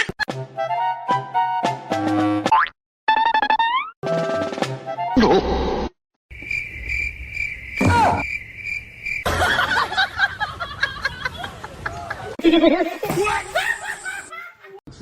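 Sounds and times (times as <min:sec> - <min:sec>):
cricket-like chirping trill: 0:06.3 - 0:10.0.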